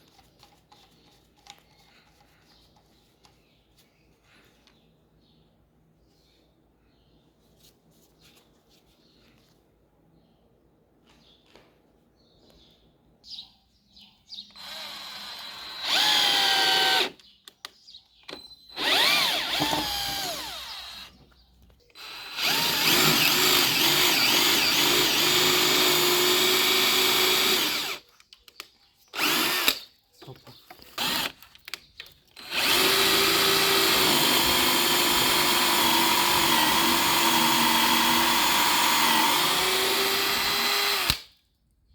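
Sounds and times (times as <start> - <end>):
impact drill motor spinning: 14.6 - 17.2, 18.8 - 21.2, 22.0 - 28.0, 29.2 - 29.8, 30.9 - 31.4, 32.4 - 41.3.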